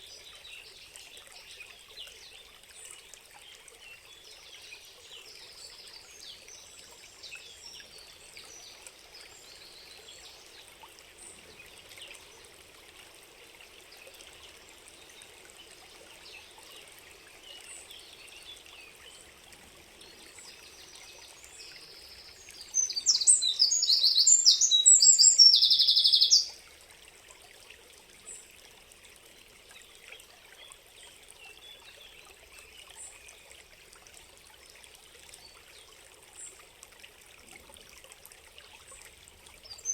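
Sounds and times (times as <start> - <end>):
small birds chirping faintly: 0.0 - 26.6
stream trickling: 0.0 - 39.9
bird singing loudly close by: 22.6 - 26.5.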